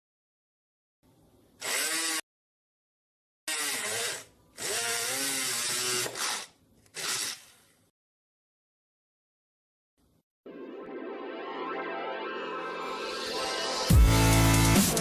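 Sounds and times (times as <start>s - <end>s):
small drill motor whining: 1.6s - 2.2s, 3.5s - 7.7s.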